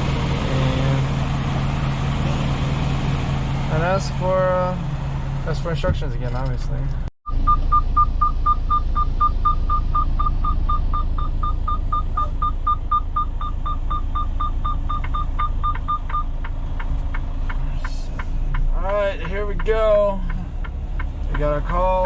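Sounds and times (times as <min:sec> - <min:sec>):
truck engine idling: 0:00.0 - 0:22.0
rapid electronic beeping: 0:07.3 - 0:16.3.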